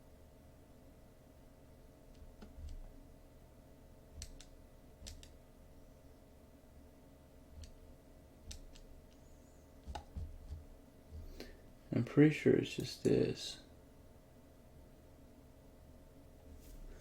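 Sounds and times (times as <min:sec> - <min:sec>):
faint steady hum: 0:00.0 - 0:17.0
computer mouse clicking: 0:02.1 - 0:02.9, 0:04.2 - 0:05.4, 0:07.6 - 0:07.8, 0:08.4 - 0:09.2.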